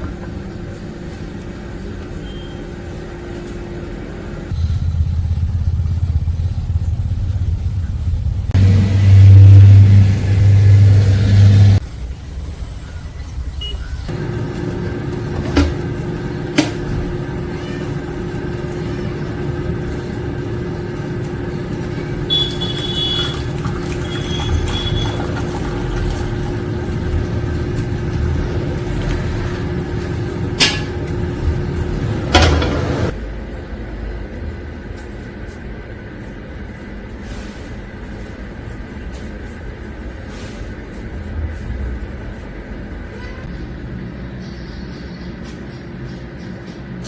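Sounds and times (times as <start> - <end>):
machine hum: 4.2 - 11.8, 14.1 - 34.8.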